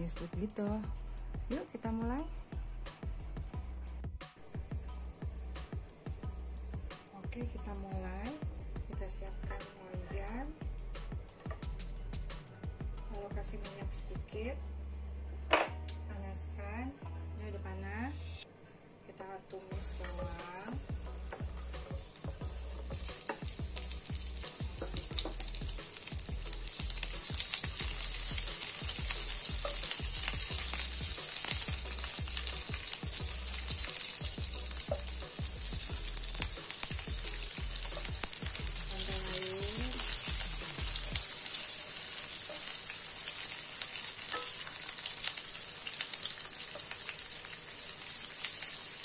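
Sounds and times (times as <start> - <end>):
onion and garlic sizzling in oil: 4.4 - 10.5, 19.8 - 49.0.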